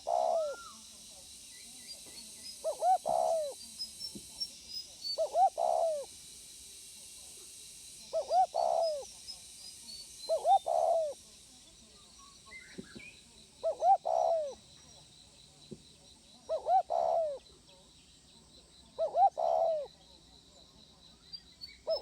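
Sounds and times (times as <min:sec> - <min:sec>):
dove cooing: 0:00.0 - 0:00.8, 0:02.6 - 0:03.6, 0:05.2 - 0:06.1, 0:08.1 - 0:09.1, 0:10.3 - 0:11.2, 0:13.6 - 0:14.6, 0:16.5 - 0:17.4, 0:19.0 - 0:19.9
small birds chirping: 0:00.0 - 0:06.1, 0:08.0 - 0:20.3.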